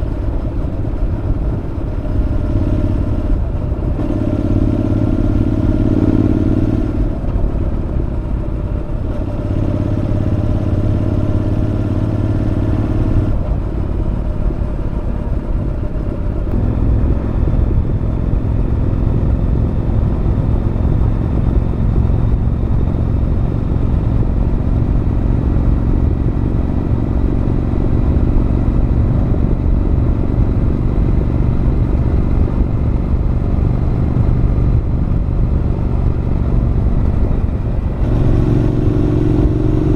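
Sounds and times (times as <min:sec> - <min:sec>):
motorcycle engine while riding: 0:00.0 - 0:39.9.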